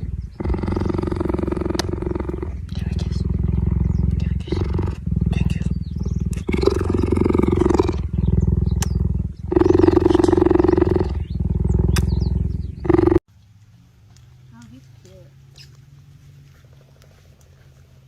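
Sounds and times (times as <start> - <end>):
big cat growling: 0.0 - 13.3.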